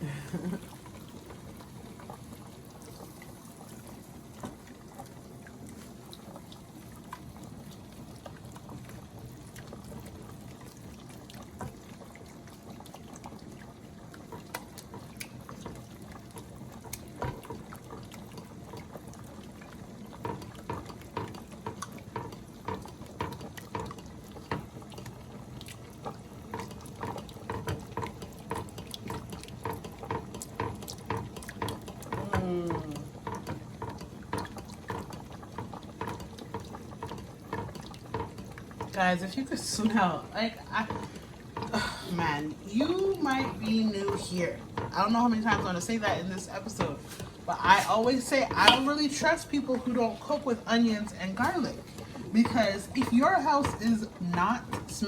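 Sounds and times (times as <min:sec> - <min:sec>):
utensil tapping against pan: 0:20.2 - 0:25.1, 0:26.5 - 0:39.0, 0:40.6 - 0:49.9, 0:51.4 - 0:55.0.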